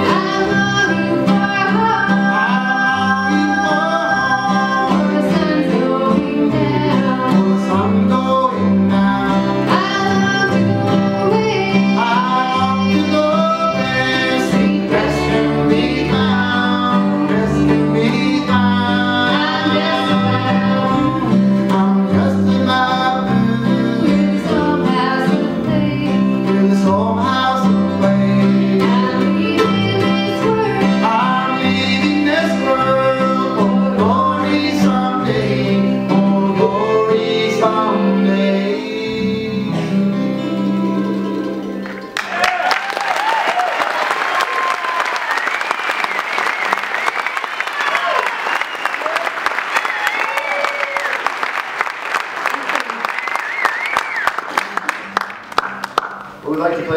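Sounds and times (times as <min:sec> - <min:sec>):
mandolin: 0:00.0 - 0:42.3
upright bass: 0:00.0 - 0:42.4
guitar: 0:00.0 - 0:43.3, 0:52.4 - 0:56.9.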